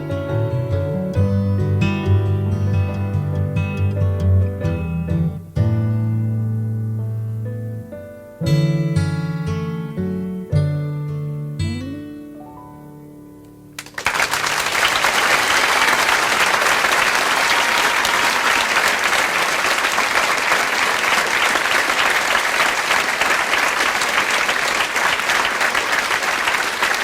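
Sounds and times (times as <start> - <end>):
piano notes: 0.0 - 13.8
audience applauding and cheering: 13.8 - 27.0.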